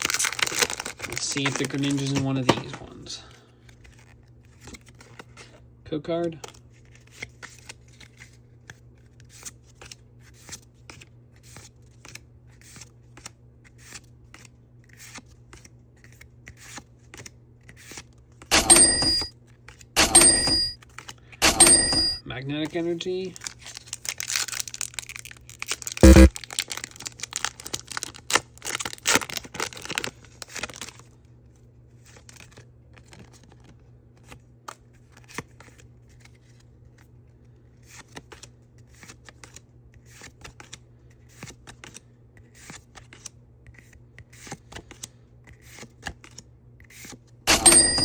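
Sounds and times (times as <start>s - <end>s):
foil wrapper crinkling and tearing: 0.0s - 2.4s, 23.2s - 31.2s
cards flicking and rustling: 0.0s - 3.0s, 6.4s - 22.1s, 22.7s - 31.0s, 37.8s - 48.0s.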